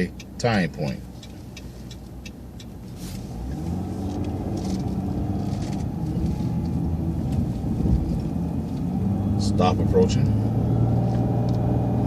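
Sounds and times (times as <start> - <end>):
bus engine: 0.0 - 12.0
faint ticks: 0.2 - 4.4.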